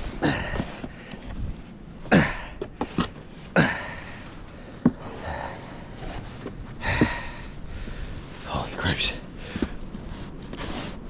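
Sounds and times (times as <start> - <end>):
man breathing heavily: 0.0 - 10.2
man grunting: 2.1 - 2.6.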